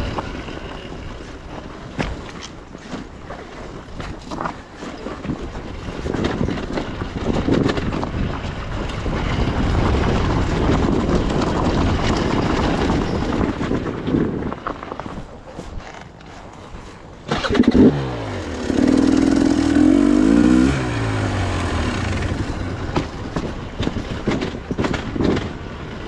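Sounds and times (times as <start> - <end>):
wind buffeting microphone: 0.0 - 26.0
motorcycle engine running: 17.3 - 26.0.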